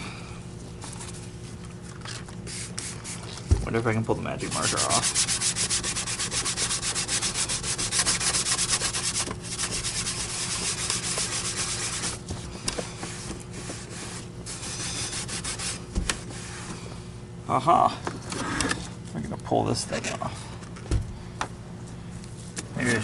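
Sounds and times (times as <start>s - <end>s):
scrubbing on metal: 4.4s - 12.2s.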